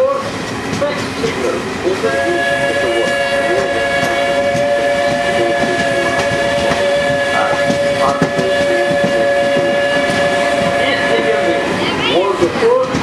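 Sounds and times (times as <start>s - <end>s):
railway rumble and clatter: 0.0s - 13.0s
train horn chord: 2.0s - 11.7s.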